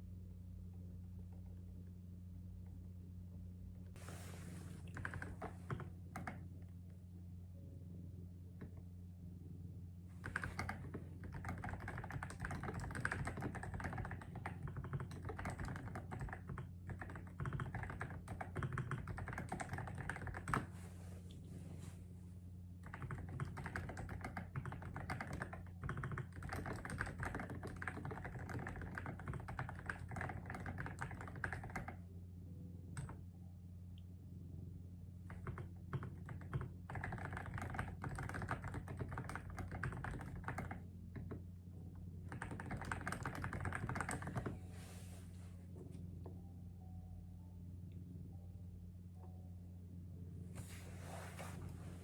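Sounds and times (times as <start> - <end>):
steady low hum: 0.0 - 52.0
rapid typing on a keyboard: 4.8 - 6.4, 10.2 - 20.7, 22.8 - 32.0, 32.9 - 33.2, 35.3 - 41.4, 42.2 - 44.6.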